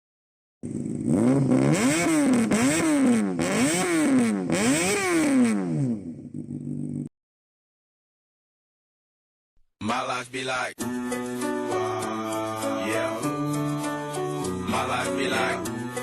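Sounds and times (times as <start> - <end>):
motorcycle engine revving: 0.6 - 7.1.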